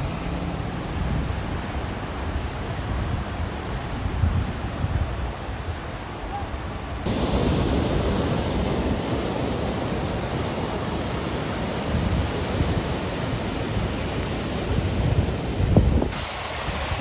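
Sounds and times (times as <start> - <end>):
wind buffeting microphone: 14.7 - 17.0.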